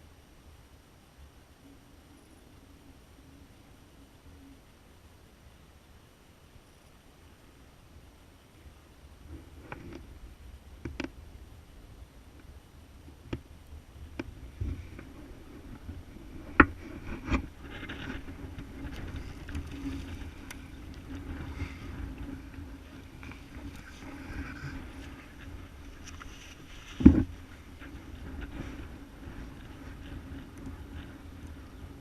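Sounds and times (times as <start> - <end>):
dirt bike engine at low revs: 14.1 - 32.0.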